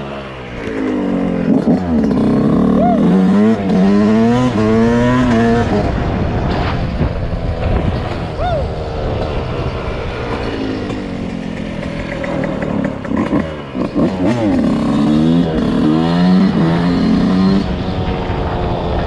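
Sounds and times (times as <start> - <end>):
dirt bike engine revving: 0.0 - 6.8, 7.7 - 19.0.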